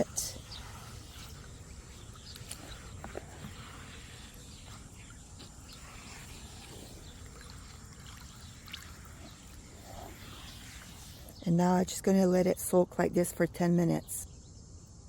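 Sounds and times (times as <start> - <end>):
wet sloshing and rubbing: 0.0 - 11.4.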